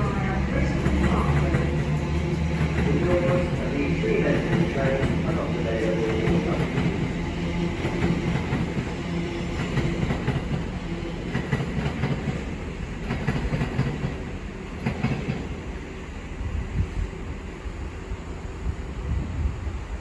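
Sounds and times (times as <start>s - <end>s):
train wheels clicking over rail joints: 0.0s - 15.6s
electric train hum: 0.0s - 20.0s.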